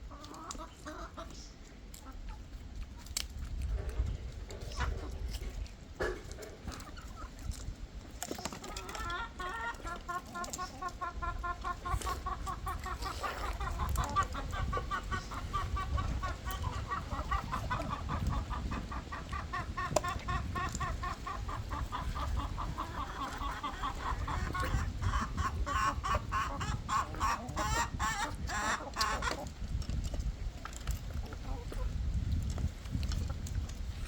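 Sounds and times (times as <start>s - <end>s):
hens clucking: 0.0s - 34.0s.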